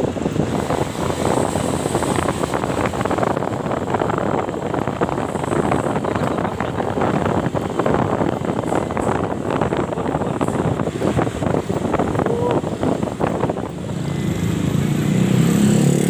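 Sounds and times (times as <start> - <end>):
truck engine rumble: 0.0 - 16.0
wind buffeting microphone: 0.0 - 16.0.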